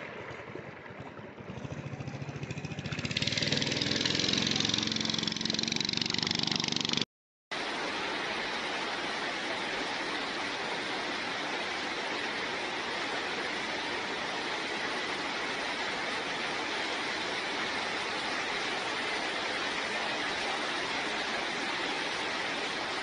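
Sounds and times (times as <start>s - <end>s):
engine running with fast pulse: 0.0s - 23.0s
steady rushing noise: 3.0s - 23.0s.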